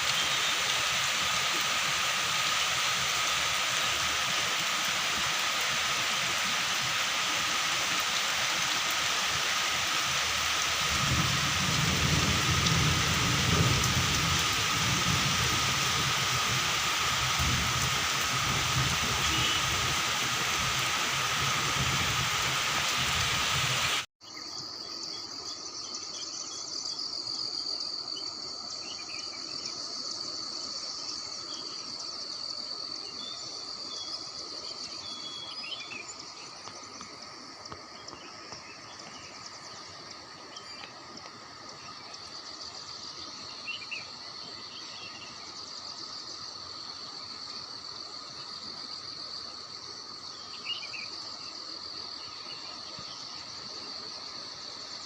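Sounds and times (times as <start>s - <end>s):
short insect chirps: 0.0s - 22.4s
heavy rain hissing: 0.0s - 24.1s
high-pitched insect chorus: 0.0s - 55.0s.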